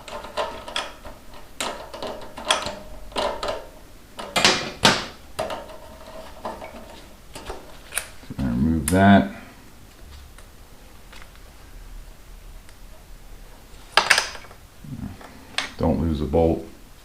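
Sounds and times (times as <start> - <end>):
socket and ratchet clinking: 0.0 - 8.2.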